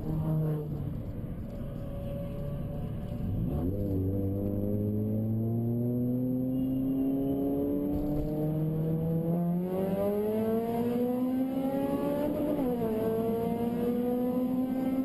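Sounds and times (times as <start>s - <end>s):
car engine accelerating hard: 7.4s - 15.0s.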